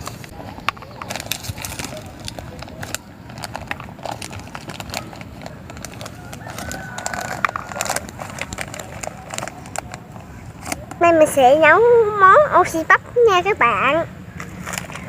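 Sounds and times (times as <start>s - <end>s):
rustling: 0.0s - 11.3s.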